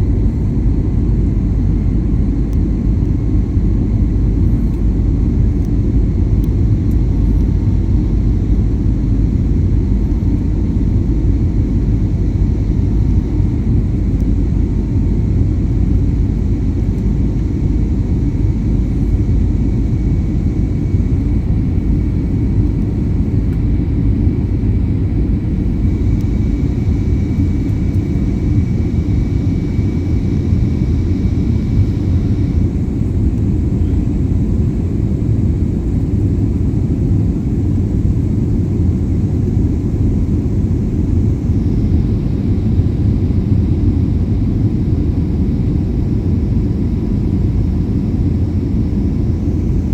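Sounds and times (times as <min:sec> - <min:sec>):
airplane engines rumbling: 0:00.0 - 0:49.9
faint high whine: 0:11.8 - 0:42.3, 0:47.8 - 0:49.9.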